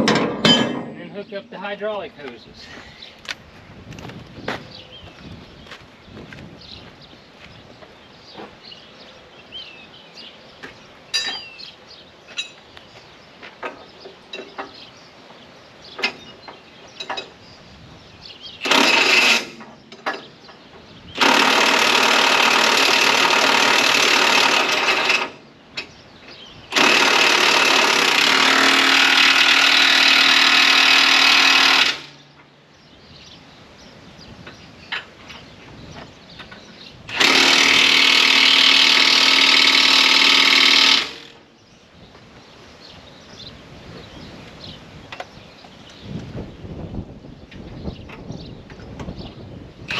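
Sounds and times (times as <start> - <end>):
tools clanking and knocking: 0.0 - 1.4, 10.6 - 11.6, 13.4 - 14.8, 16.0 - 17.4, 18.6 - 21.4, 34.4 - 41.2.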